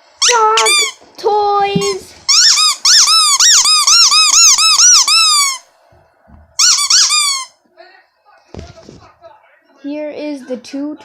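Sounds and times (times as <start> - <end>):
squeaky dog toy squeaking: 0.2 - 1.0, 1.8 - 5.6, 6.6 - 7.6.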